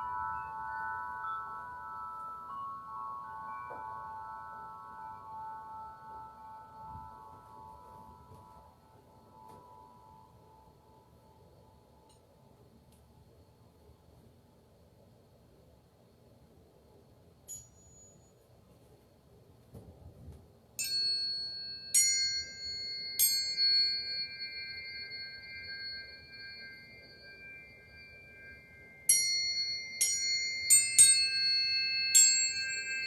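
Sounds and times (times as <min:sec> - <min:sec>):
metal chimes ringing: 0:00.0 - 0:11.4, 0:17.5 - 0:18.4, 0:20.8 - 0:33.0.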